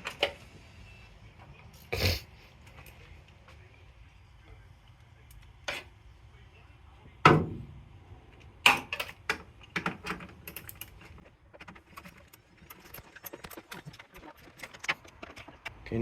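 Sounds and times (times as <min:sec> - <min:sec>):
hand tools clicking and clattering: 0:08.4 - 0:15.8.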